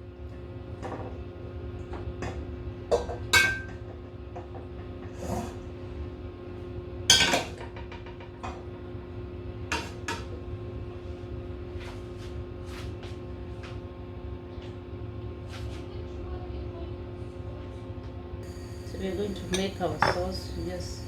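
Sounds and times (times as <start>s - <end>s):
cookware clinking and tapping: 2.9s - 3.8s, 19.5s - 20.5s
metal cookware clanking: 19.4s - 20.6s.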